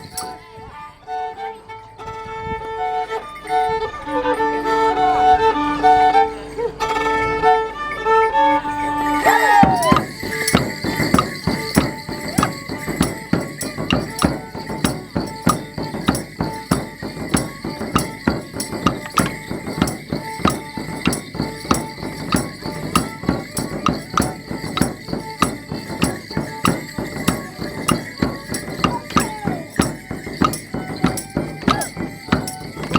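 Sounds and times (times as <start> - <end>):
sticks clacking with jingling bells: 0.0 - 0.4, 9.0 - 32.9.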